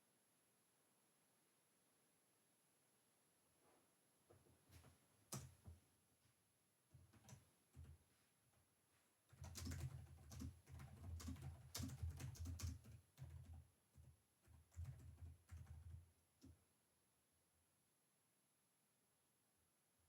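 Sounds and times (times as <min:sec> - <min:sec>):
keyboard typing: 0:05.3 - 0:05.6, 0:07.0 - 0:08.0, 0:09.3 - 0:16.6.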